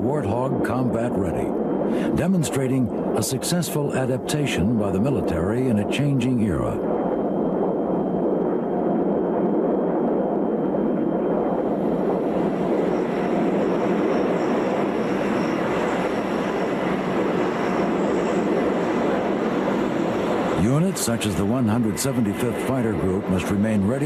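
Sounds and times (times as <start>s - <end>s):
jet engine rushing: 0.0s - 24.0s.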